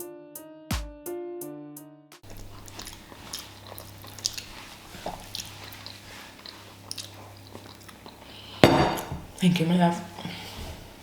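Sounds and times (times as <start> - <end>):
keyboard music: 0.0 - 2.2
person chewing: 2.2 - 9.1
soft crunches: 2.3 - 7.9.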